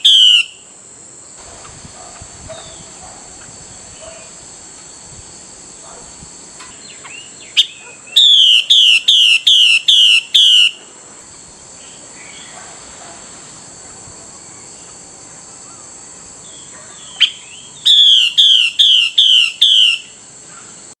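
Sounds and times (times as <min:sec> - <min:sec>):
bird whistling call: 0:00.0 - 0:00.6, 0:06.8 - 0:10.8, 0:17.0 - 0:20.2.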